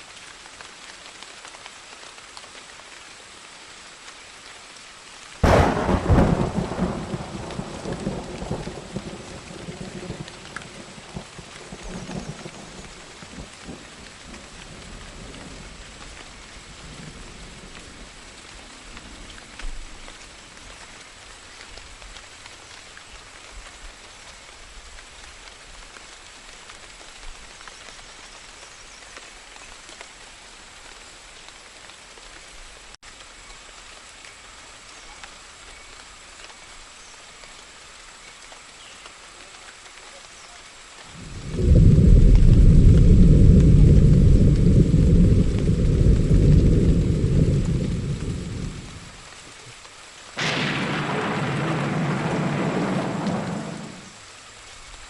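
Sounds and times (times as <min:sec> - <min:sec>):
steady rain falling: 0:00.0 - 0:55.0
thunder rumbling: 0:05.4 - 0:20.1, 0:41.1 - 0:49.3, 0:50.4 - 0:54.2.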